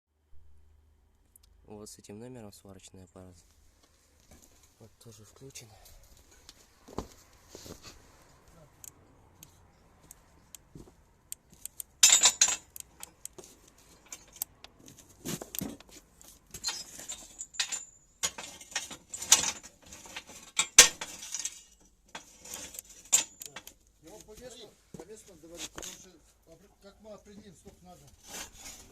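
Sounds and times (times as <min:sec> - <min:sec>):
sharp crackling clicks: 0:08.8 - 0:14.8
metallic clinking: 0:11.3 - 0:14.8, 0:16.5 - 0:23.8.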